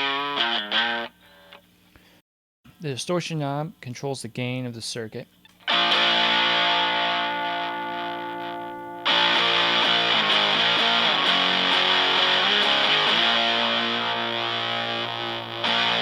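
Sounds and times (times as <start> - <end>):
distorted electric guitar chords: 0.0 - 1.2, 5.6 - 16.0.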